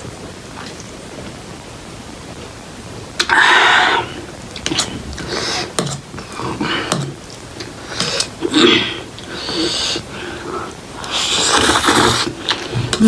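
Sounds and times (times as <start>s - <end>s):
noodle slurping: 7.8s - 13.0s.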